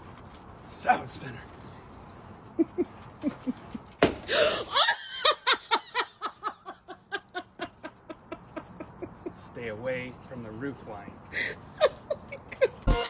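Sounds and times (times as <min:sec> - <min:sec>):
person laughing hard: 0:02.6 - 0:09.4.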